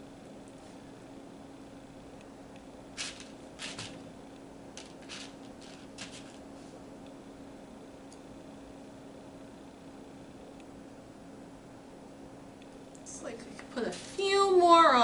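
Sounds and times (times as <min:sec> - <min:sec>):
steady low hum: 0:00.0 - 0:15.0
cereal rustling and clicking: 0:03.0 - 0:04.0, 0:04.8 - 0:06.4.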